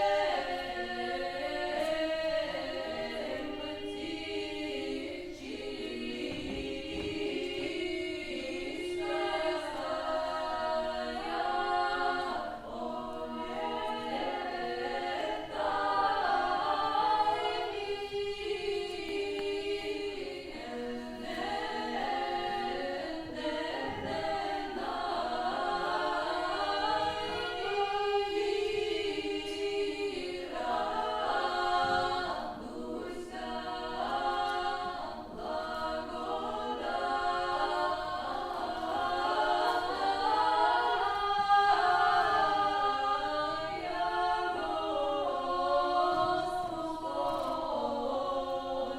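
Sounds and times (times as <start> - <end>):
unaccompanied choir singing: 0.0 - 48.9.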